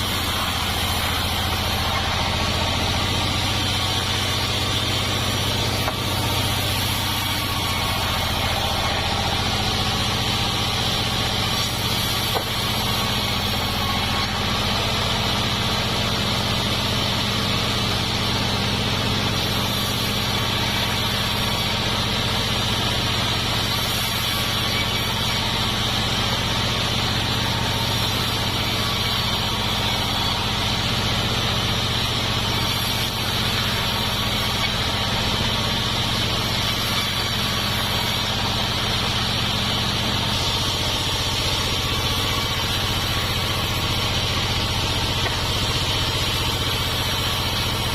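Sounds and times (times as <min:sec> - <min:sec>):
engine hum: 0:00.0 - 0:47.9
machinery whine: 0:00.0 - 0:47.9.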